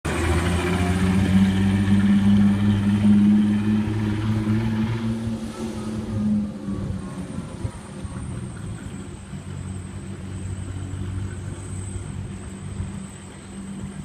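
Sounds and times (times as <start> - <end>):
unmuffled car engine running: 0.0 - 14.0.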